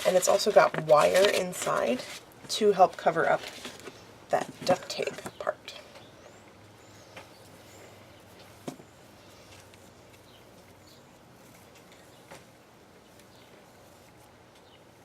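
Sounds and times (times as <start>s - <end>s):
paper ribbon handling: 0.0s - 4.0s.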